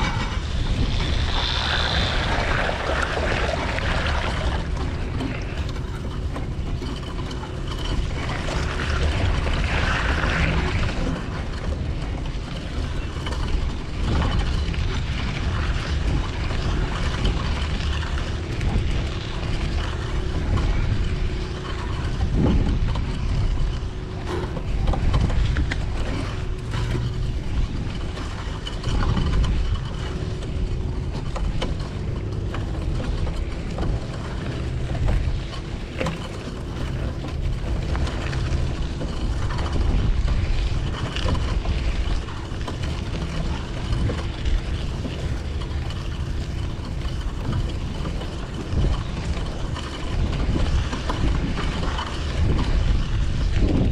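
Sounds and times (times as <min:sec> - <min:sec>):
rumble of passing traffic: 0:00.0 - 0:53.9.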